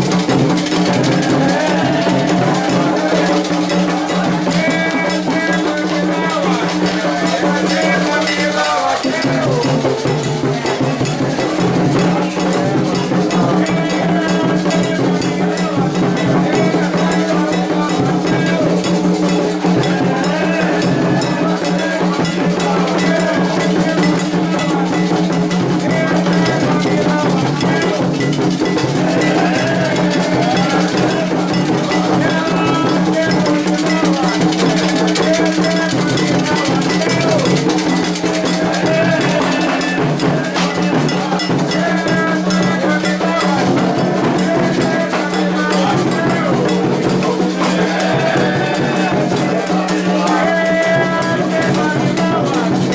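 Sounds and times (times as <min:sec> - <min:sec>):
bell struck in repeating pattern: 0:00.0 - 0:52.9
hand drums: 0:00.0 - 0:52.9
voices singing a chant: 0:00.0 - 0:52.9.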